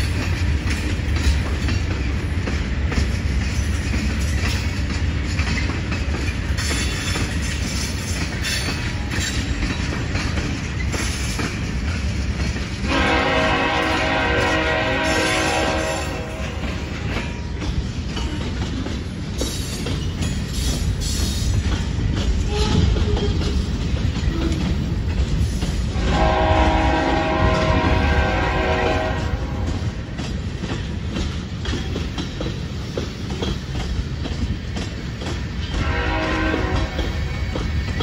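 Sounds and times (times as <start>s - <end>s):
clickety-clack over rail joints: 0.0s - 38.0s
freight train wheels rumbling: 0.0s - 38.0s
distant train horn: 12.8s - 17.2s, 25.9s - 30.0s, 35.7s - 37.5s.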